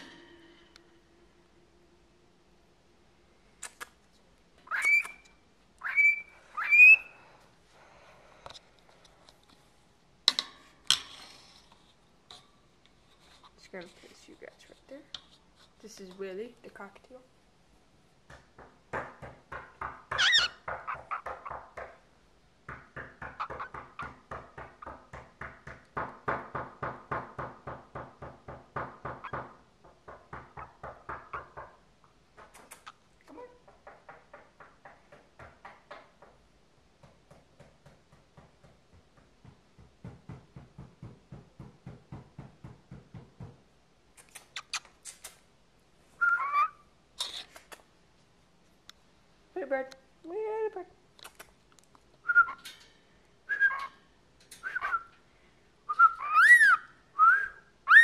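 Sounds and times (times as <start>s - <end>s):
cockatiel chattering: 4.7s - 7.1s, 20.1s - 21.6s, 46.2s - 47.8s
cockatiel whistle: 4.7s - 7.2s, 46.2s - 46.8s, 52.2s - 52.6s, 53.5s - 53.9s, 54.6s - 55.1s, 55.9s - 58.0s.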